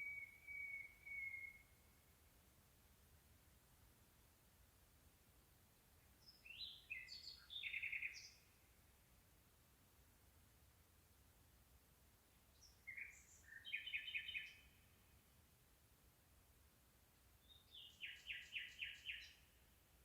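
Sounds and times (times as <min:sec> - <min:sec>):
songbird singing: 0:00.0 - 0:02.1, 0:05.7 - 0:08.8, 0:12.3 - 0:15.4, 0:17.3 - 0:20.0
faint steady hiss: 0:00.0 - 0:20.0.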